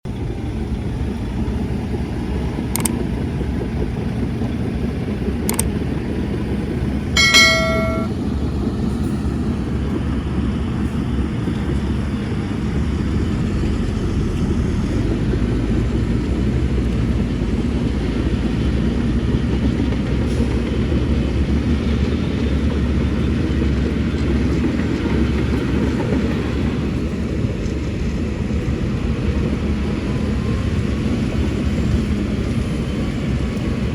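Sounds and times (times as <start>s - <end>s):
diesel engine rumbling: 0.1s - 33.9s
sharp clicks: 2.8s - 3.0s, 5.5s - 5.7s.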